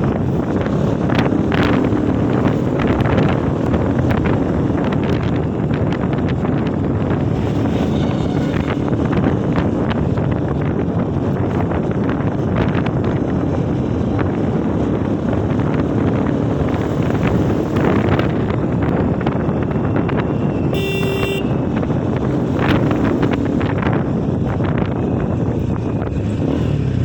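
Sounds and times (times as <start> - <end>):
wind and motorcycle road rumble: 0.0 - 27.0
vehicle horn honking: 20.7 - 21.7.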